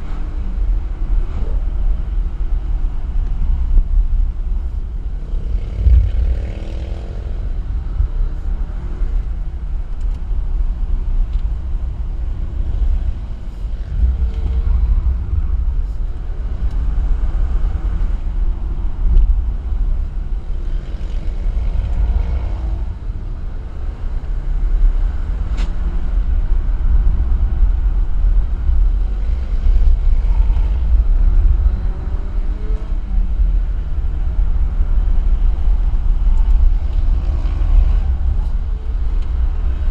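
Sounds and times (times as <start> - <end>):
road and wind rumble: 0.0 - 39.9.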